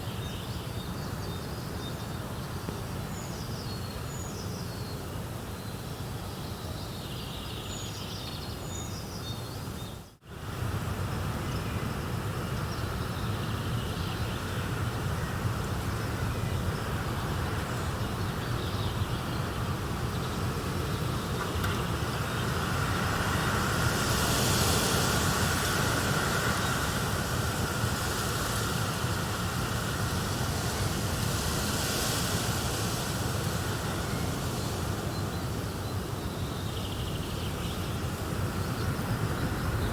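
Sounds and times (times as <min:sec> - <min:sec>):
birds chirping: 0:12.9 - 0:39.9
steady rushing noise: 0:14.6 - 0:39.9.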